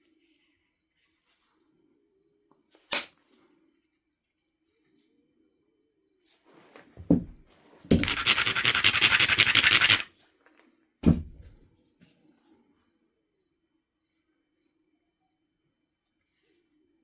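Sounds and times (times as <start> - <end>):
stone scratching flint: 7.9 - 10.1.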